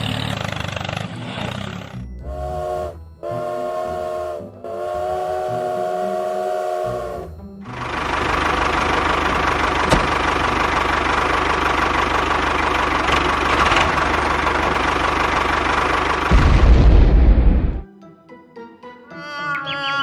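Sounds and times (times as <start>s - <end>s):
engine knocking idle: 0.0s - 2.0s, 7.7s - 16.6s
deep rumble: 16.2s - 17.8s.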